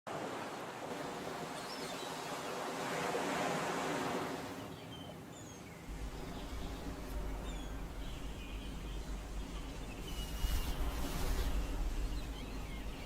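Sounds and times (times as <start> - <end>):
ocean waves washing in: 0.1 - 4.8, 5.9 - 13.0
birds chirping: 4.4 - 13.0.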